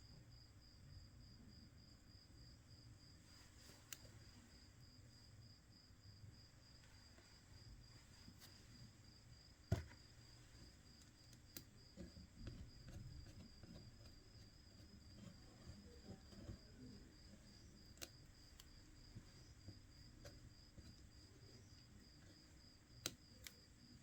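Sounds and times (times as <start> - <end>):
faint ticks: 3.6 - 4.4
light handling noises: 6.8 - 24.0.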